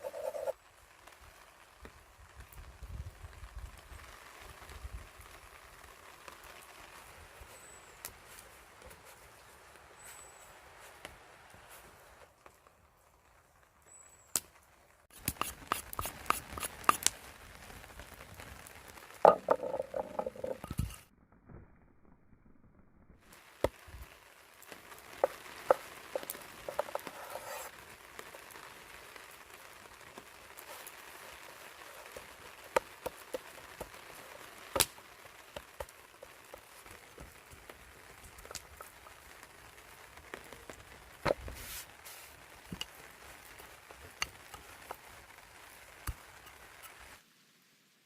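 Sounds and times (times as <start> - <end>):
soft steady hiss: 23.3 - 48.0.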